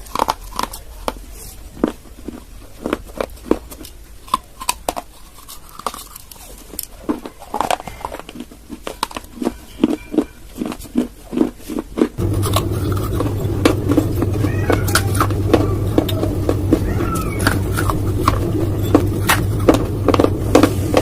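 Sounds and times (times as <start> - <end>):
clay crunched and chewed: 0.0 - 20.3
steady low hum: 12.2 - 21.0.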